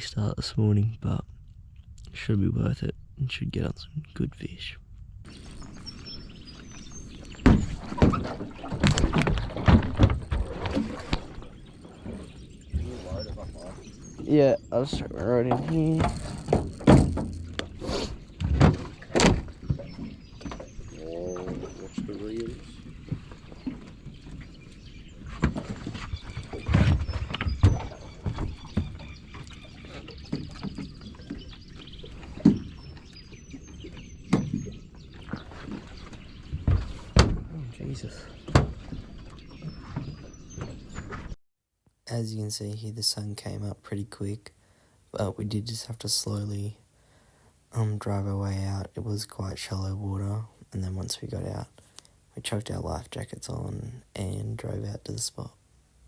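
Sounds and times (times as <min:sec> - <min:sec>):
water noise: 0:00.0 - 0:41.4
high bird chirps: 0:05.3 - 0:08.7
gear knocking against boat: 0:15.0 - 0:17.8.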